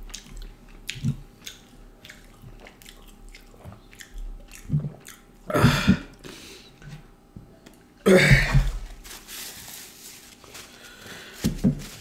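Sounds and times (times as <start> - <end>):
close chewing and biting: 0.0 - 5.4
wet mouth clicks and smacks: 0.1 - 5.2.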